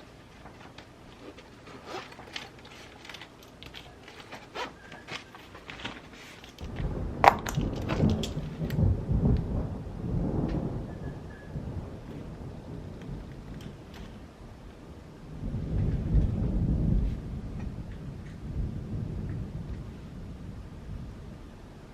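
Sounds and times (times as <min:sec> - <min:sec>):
rain: 0:05.6 - 0:21.9
rumble of thunder: 0:06.6 - 0:21.9.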